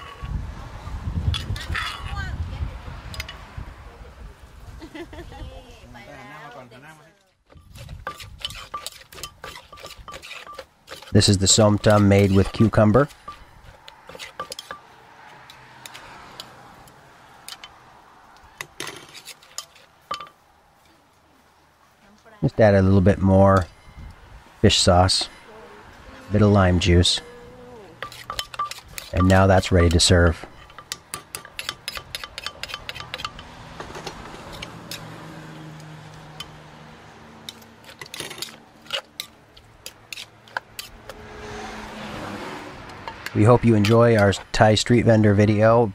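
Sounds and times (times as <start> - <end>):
faint steady background noise: 0.0 - 45.9
kitchen utensils tapping: 8.0 - 14.9, 18.6 - 20.4, 28.0 - 35.0.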